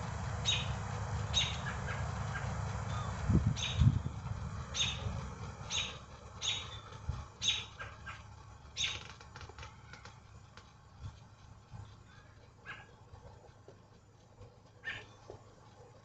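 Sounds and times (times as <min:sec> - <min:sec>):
birds chirping: 0:00.3 - 0:10.3, 0:11.8 - 0:13.1, 0:14.8 - 0:15.5.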